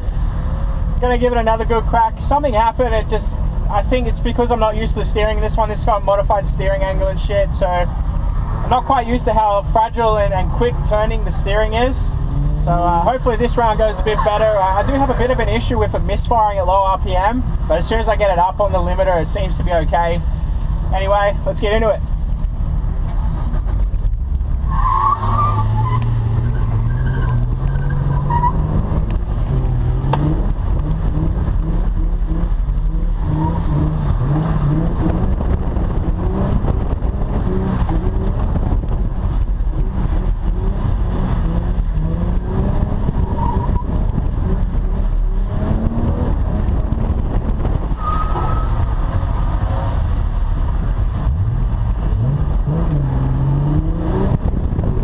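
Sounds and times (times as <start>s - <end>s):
tyres skidding: 0.0s - 55.0s
car engine revving: 21.7s - 55.0s
tyre squeals: 24.6s - 28.7s, 43.2s - 44.0s, 47.9s - 49.0s.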